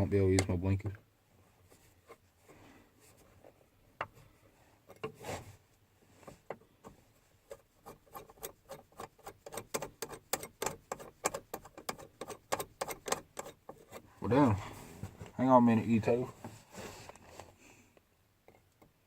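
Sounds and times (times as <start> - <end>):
plastic and metal clicking: 8.1 - 14.0.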